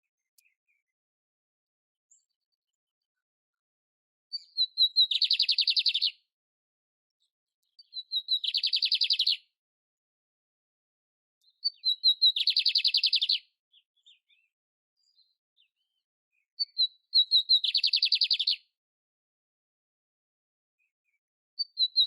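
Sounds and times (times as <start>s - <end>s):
canary singing: 4.3s - 6.2s, 7.8s - 9.5s, 11.4s - 14.5s, 16.6s - 18.6s.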